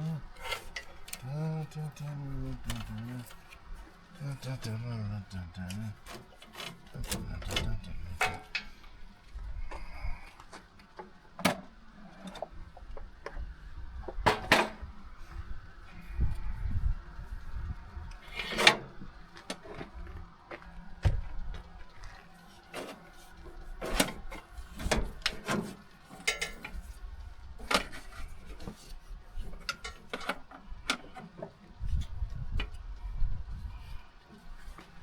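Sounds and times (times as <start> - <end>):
metal clicks and clanks: 6.0 - 8.8, 23.8 - 26.8.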